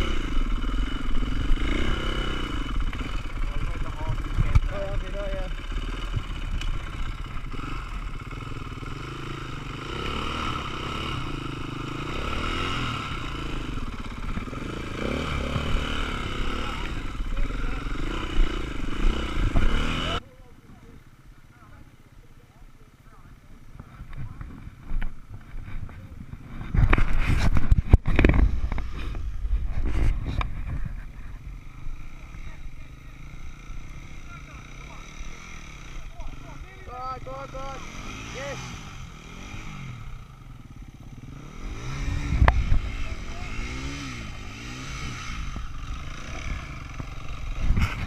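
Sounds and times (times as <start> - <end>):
motorcycle engine revving: 0.0 - 22.0, 22.8 - 48.0
clatter: 23.8 - 31.4.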